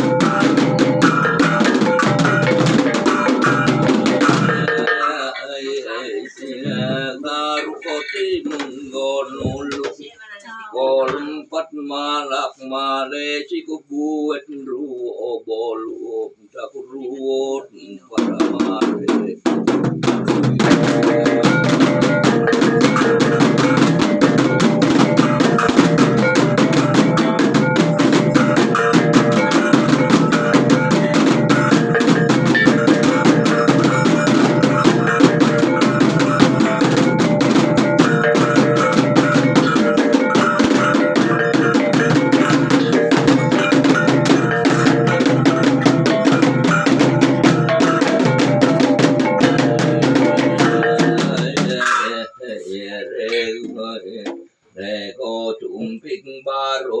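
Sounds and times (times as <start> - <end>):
rapid dense drumming: 0.0 - 5.4, 18.2 - 52.3
ringing metal percussion tones: 0.0 - 7.0, 19.8 - 52.5.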